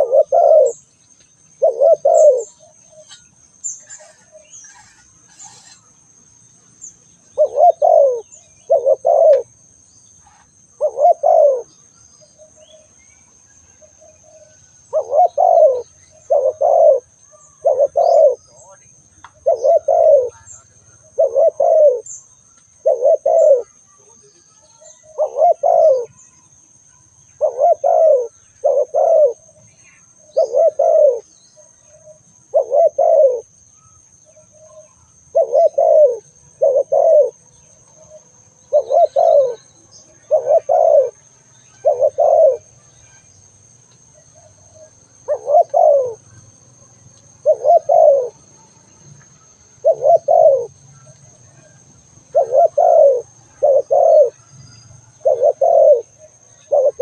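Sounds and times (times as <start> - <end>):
dove cooing: 0.0 - 0.9, 1.5 - 5.9, 7.2 - 9.6, 10.2 - 11.8, 13.8 - 26.3, 27.4 - 33.5, 34.3 - 42.8, 44.1 - 46.6, 47.3 - 48.6, 49.7 - 50.8, 52.3 - 54.5, 55.1 - 57.0
faint steady high tone: 0.0 - 57.0.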